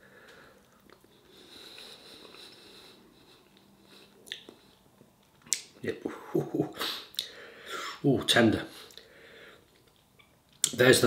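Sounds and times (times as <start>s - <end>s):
breathing through the nose: 0.0s - 4.2s, 6.8s - 8.0s, 8.8s - 9.7s
faint chewing: 0.3s - 5.7s, 8.9s - 10.8s
small mouth clicks: 4.2s - 4.7s, 5.4s - 5.7s.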